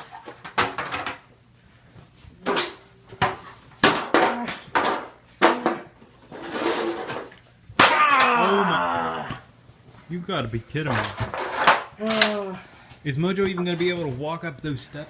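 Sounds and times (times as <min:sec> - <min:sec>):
person grunting or crying out: 0:07.8 - 0:09.5, 0:12.0 - 0:12.7.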